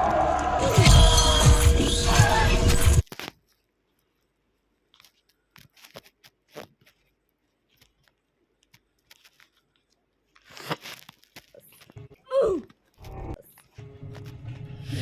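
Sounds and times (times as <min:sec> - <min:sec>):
raw vegetables crunching: 0:04.9 - 0:14.4.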